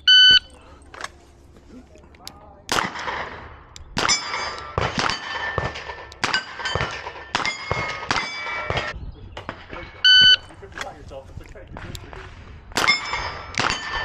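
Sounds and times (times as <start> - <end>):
steel plate ringing clang: 4.0 - 8.9, 12.8 - 14.0.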